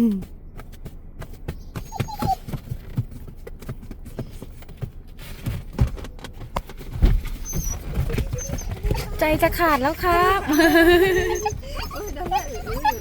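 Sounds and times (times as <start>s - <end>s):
dog moving taps and thumps: 0.2s - 13.0s
dog whining: 1.6s - 2.6s, 7.3s - 13.0s.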